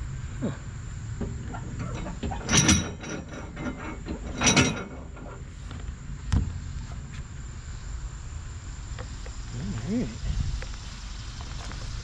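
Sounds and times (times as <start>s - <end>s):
crate scraping rattles: 1.3s - 5.6s.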